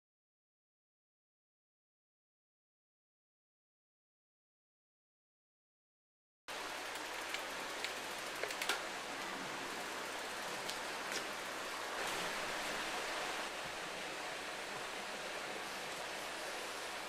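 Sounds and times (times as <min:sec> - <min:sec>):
river water flowing: 0:06.5 - 0:17.0.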